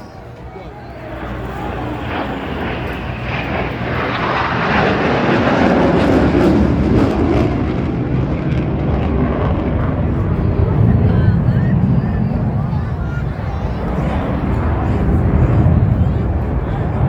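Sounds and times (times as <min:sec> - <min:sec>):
jet engines roaring past: 0:00.0 - 0:17.0.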